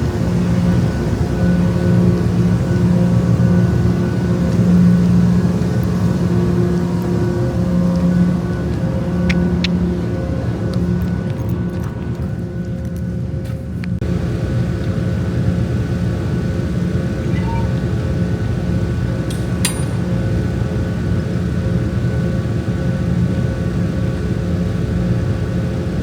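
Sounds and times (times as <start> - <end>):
sharp click: 19.3 - 20.0.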